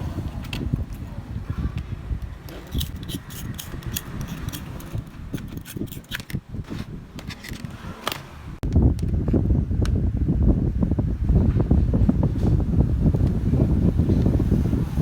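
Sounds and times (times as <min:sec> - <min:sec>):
hand tools clicking and tapping: 0:02.5 - 0:08.3.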